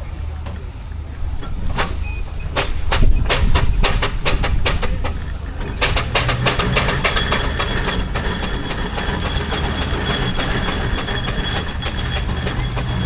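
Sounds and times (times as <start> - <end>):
steam engine exhaust beats: 0.0 - 13.0
high squeal: 6.6 - 13.0.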